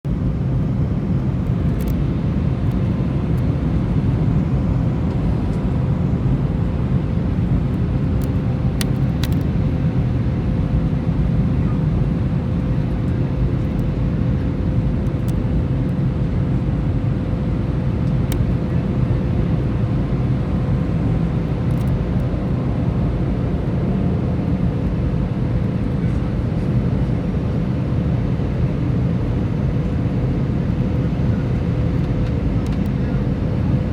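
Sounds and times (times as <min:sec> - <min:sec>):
airliner engines rumbling: 0:00.1 - 0:33.9.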